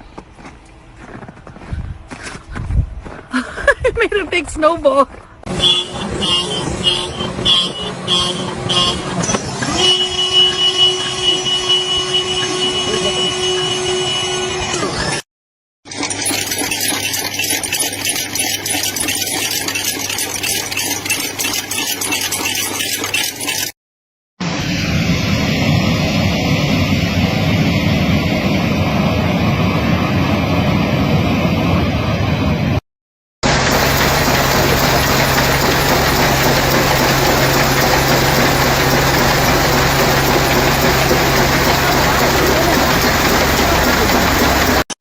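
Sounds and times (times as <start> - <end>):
engine running steadily: 5.4 - 13.2, 33.4 - 44.9
machine rattling over a hum: 15.9 - 23.8, 33.5 - 44.9.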